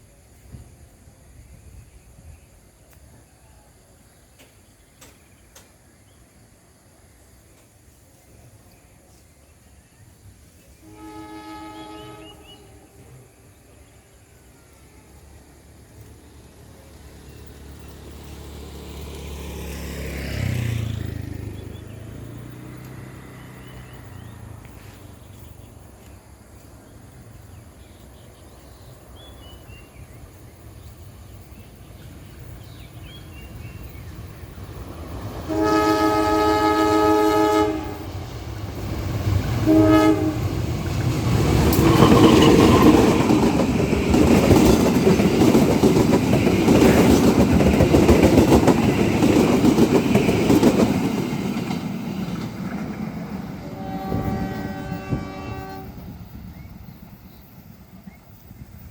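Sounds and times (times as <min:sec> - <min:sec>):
train running and wheel rumble: 0:00.0 - 0:58.9
train horn blasts: 0:10.8 - 0:13.4, 0:35.4 - 0:38.3, 0:39.5 - 0:40.7, 0:53.6 - 0:56.2.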